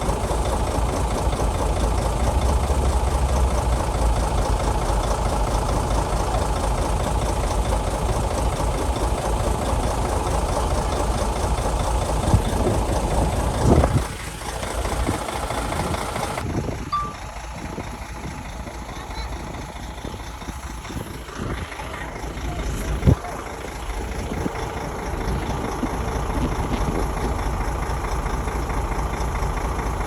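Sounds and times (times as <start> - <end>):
bulldozer diesel engine running: 0.0 - 30.0
sharp metal clanks: 16.9 - 17.3.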